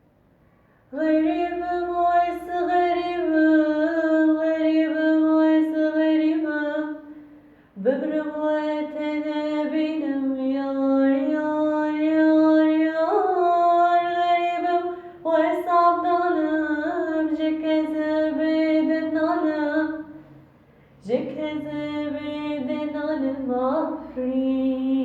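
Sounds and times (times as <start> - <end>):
woman singing unaccompanied: 0.9 - 7.2, 7.8 - 20.2, 21.0 - 25.0
singer breathing: 7.1 - 7.8.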